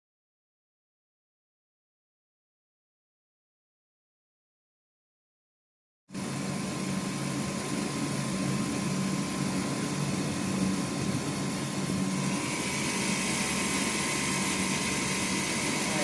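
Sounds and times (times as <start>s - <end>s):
high machine whine: 6.1s - 16.0s
higher machine whine: 6.1s - 16.0s
lathe machine hum: 6.2s - 16.0s.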